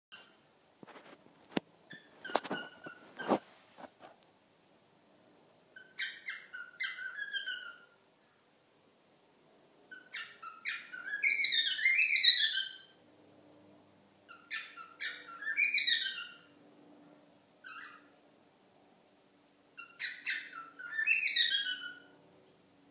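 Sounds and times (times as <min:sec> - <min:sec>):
cockatiel chirping and whistling: 0:05.8 - 0:07.9, 0:09.9 - 0:12.9, 0:14.3 - 0:16.4, 0:17.6 - 0:18.0, 0:19.8 - 0:22.1.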